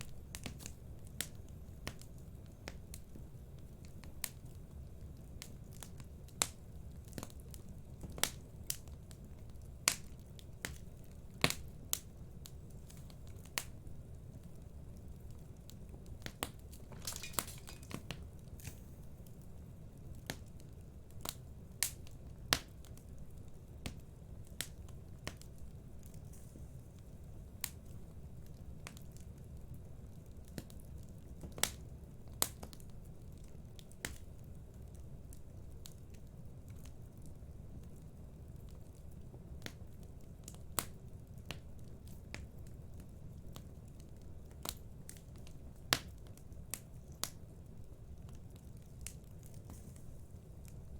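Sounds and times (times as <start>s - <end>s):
fire crackling in fireplace: 0.0s - 50.9s.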